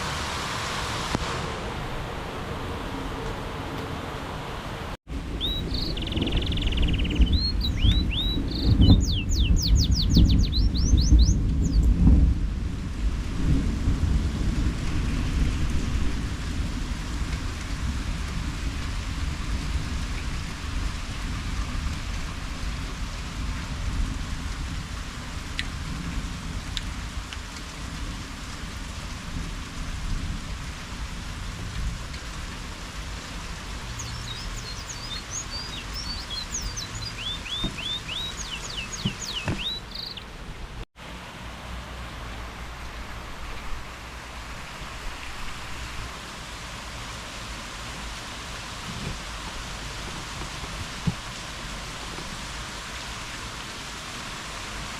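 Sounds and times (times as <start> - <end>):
thunder rumbling: 0.0 - 40.8
steady rain falling: 0.0 - 54.9
bird chirping: 5.3 - 11.8, 33.9 - 40.3.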